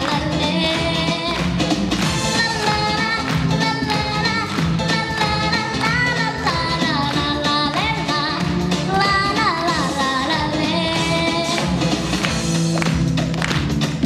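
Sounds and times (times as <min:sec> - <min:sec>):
girl singing: 0:00.0 - 0:01.5, 0:02.3 - 0:11.8
pop backing track: 0:00.0 - 0:14.0.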